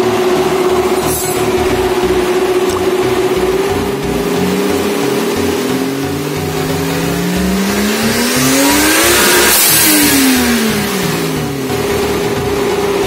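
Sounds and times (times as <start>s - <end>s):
turbocharged engine revving: 0.0s - 13.0s.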